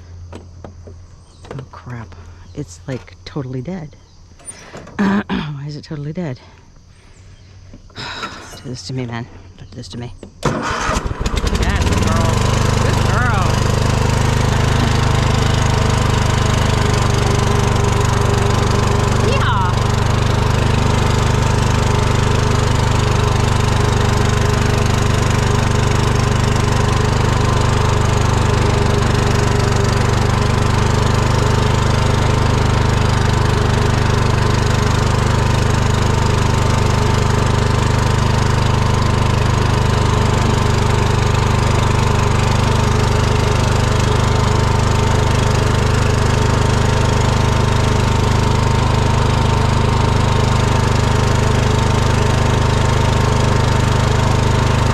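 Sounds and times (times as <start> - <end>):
lawn mower engine running: 0.0 - 5.2, 6.8 - 9.6, 10.2 - 54.9
constant whine: 0.0 - 42.6.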